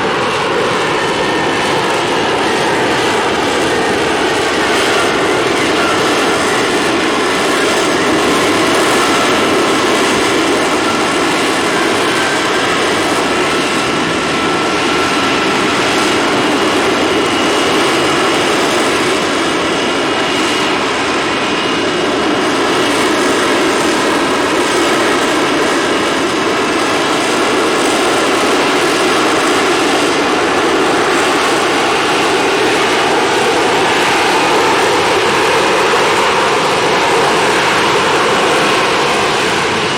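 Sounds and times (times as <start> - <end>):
aircraft engines running: 0.0 - 39.9.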